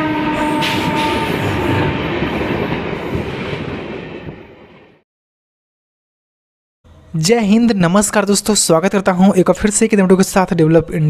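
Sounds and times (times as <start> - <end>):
train horn: 0.0 - 2.6
train rumbling on rails: 0.0 - 5.0.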